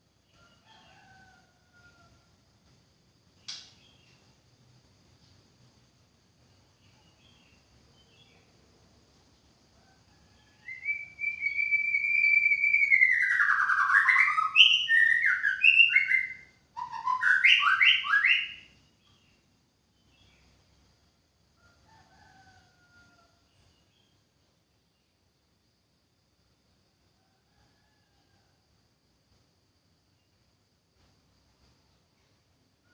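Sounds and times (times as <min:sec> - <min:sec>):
bird singing: 0:03.4 - 0:04.3, 0:06.6 - 0:08.5, 0:10.3 - 0:20.8.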